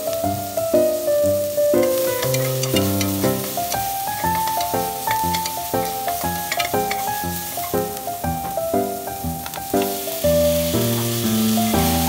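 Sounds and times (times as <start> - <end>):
onion sizzling in hot oil: 0.0 - 12.0
spatula scraping clicks: 2.2 - 7.9.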